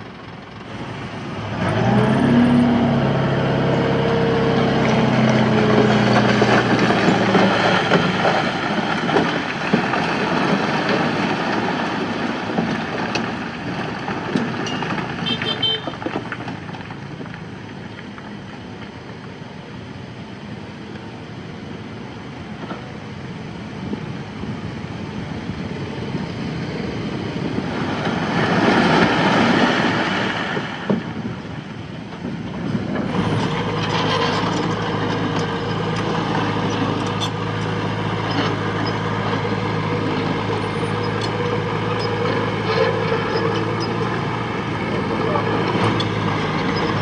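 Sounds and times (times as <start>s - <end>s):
rushing grinding noise: 0.0s - 15.2s, 32.6s - 47.0s
heavy diesel engine running: 0.0s - 47.0s.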